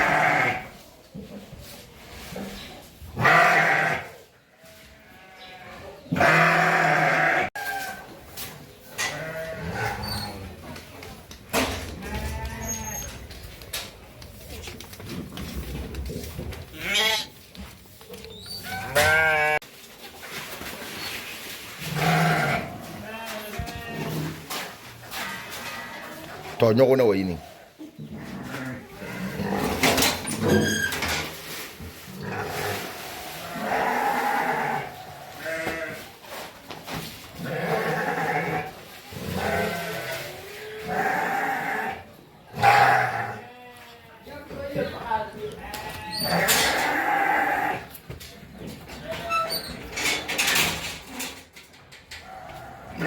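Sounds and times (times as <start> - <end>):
sheep bleating: 3.2 - 4.1, 4.7 - 7.5, 18.8 - 19.6.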